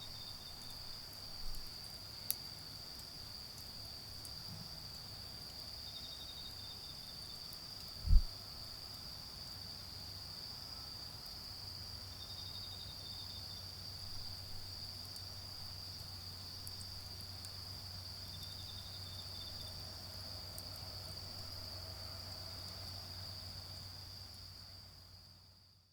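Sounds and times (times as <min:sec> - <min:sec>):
insect chirping in quick pulses: 0:07.8 - 0:08.3.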